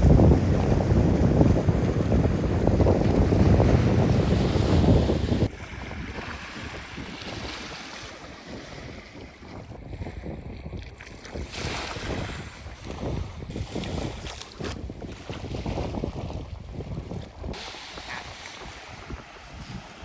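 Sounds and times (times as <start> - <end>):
waves washing at shore: 0.0 - 9.6, 17.5 - 20.0
wind buffeting the microphone: 0.0 - 20.0.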